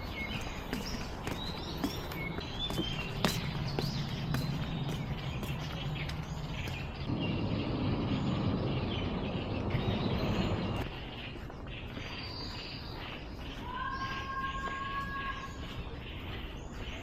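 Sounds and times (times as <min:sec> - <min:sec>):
small birds chirping: 0:00.0 - 0:17.0
steady rushing noise: 0:02.9 - 0:13.6.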